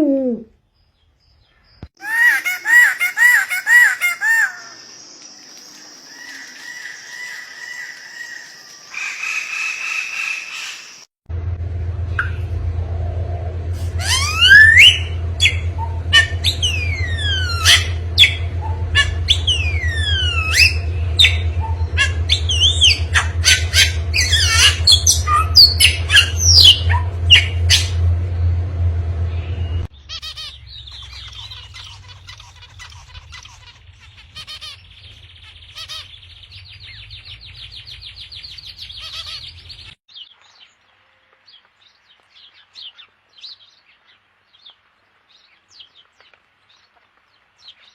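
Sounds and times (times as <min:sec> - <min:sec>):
low hum: 0:11.3 - 0:40.0
rapid chattering bird calls: 0:14.0 - 0:28.0, 0:30.0 - 0:39.7.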